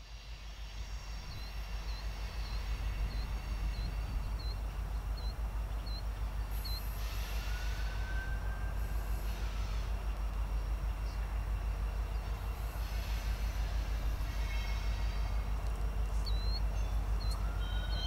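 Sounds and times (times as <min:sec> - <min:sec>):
distant freight train rumble: 0:00.0 - 0:18.0
bird chirping: 0:01.3 - 0:06.9, 0:16.1 - 0:18.0.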